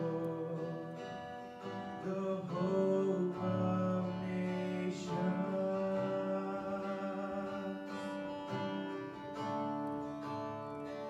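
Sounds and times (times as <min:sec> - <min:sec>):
person singing: 0:00.0 - 0:09.3
acoustic guitar strumming: 0:00.0 - 0:11.0.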